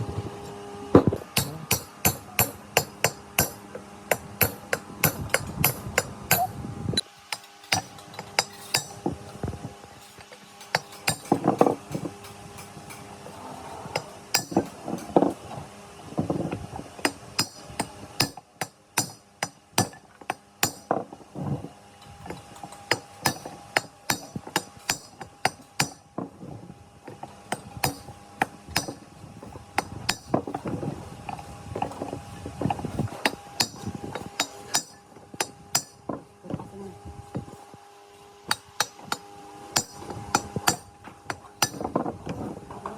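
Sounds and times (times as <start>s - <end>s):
hammer tapping on metal: 1.0s - 6.6s, 7.3s - 9.0s, 10.2s - 13.0s, 13.9s - 15.2s, 17.0s - 20.9s, 22.6s - 26.0s, 27.5s - 29.0s, 33.3s - 36.0s, 38.5s - 39.2s, 39.8s - 41.9s.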